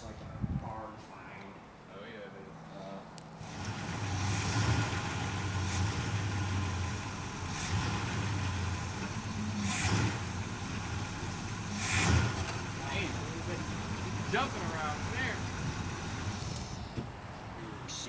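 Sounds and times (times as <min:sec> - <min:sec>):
car engine idling: 0:03.4 - 0:18.0.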